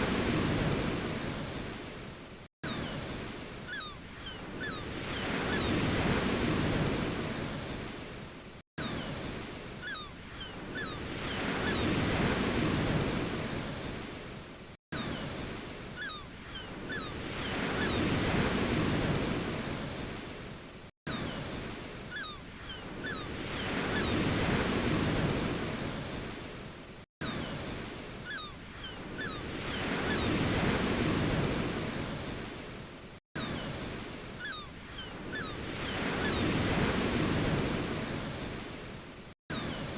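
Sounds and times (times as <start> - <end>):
ocean waves washing in: 0.0 - 39.9.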